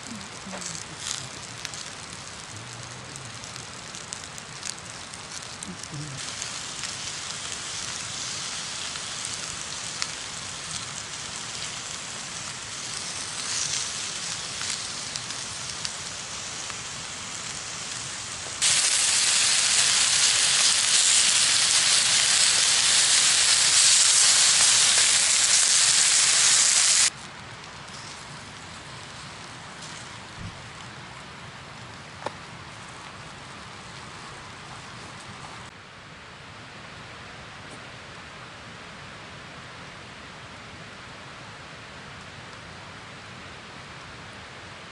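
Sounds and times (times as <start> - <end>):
loud steady hiss: 0.0 - 30.7
campfire crackling and hissing: 0.0 - 44.9.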